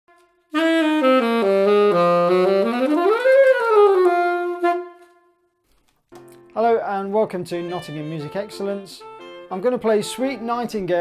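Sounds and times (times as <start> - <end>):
solo saxophone phrase: 0.1 - 5.2.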